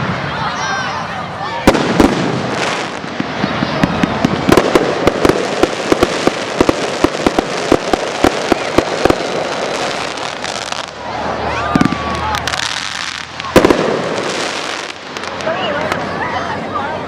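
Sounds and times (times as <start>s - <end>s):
fireworks bangs and crackles: 1.5s - 16.2s
crackling hiss: 1.7s - 11.1s, 11.9s - 16.1s.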